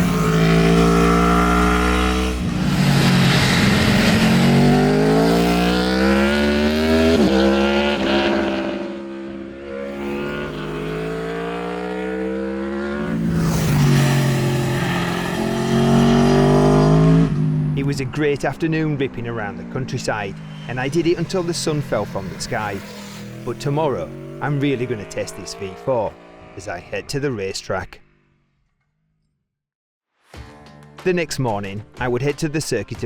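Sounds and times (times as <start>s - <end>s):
motorcycle engine accelerating: 0.0s - 29.2s.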